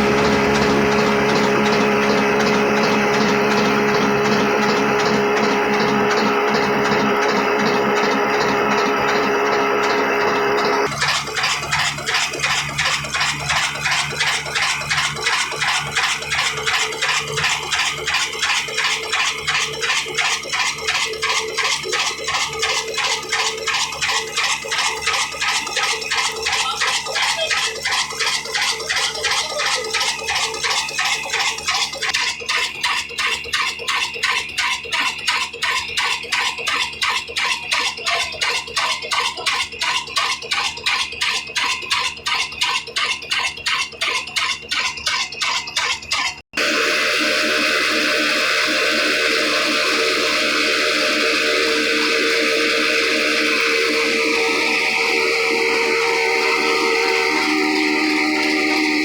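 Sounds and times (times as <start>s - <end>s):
diesel engine clattering: 0.0s - 46.7s.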